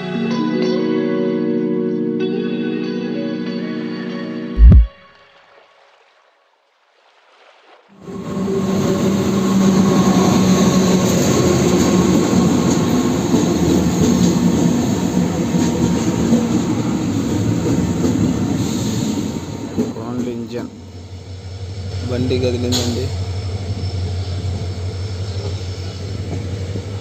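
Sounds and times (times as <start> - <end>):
train noise: 8.0 - 27.0.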